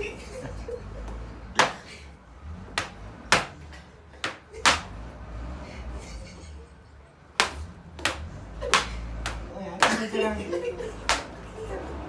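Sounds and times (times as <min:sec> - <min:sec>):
sharp smacks: 0:01.6 - 0:01.9, 0:02.7 - 0:05.1, 0:07.4 - 0:10.1, 0:11.0 - 0:11.4.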